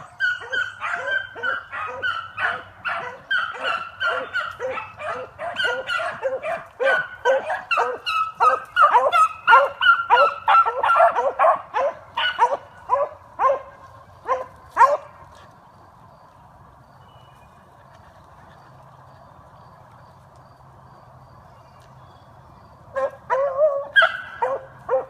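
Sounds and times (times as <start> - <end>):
dogs barking rapidly: 0.0 - 15.3, 22.9 - 25.0.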